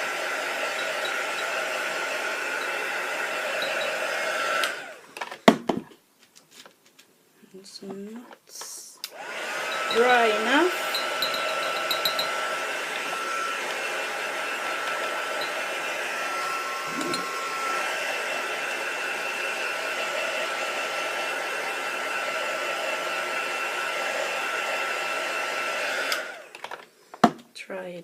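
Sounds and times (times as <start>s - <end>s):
hot-air dryer blowing: 0.0s - 5.1s, 9.0s - 27.3s.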